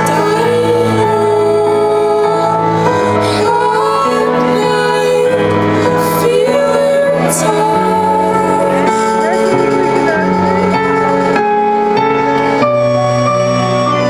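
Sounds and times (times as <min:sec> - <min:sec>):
woman singing: 0:00.0 - 0:09.7
sustained low chords: 0:00.0 - 0:14.0.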